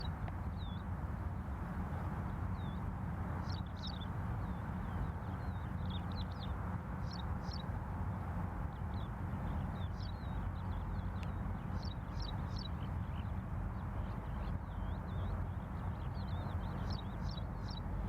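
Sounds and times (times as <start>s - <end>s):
low background rumble: 8.9s - 18.0s
bird chirping: 16.1s - 17.9s.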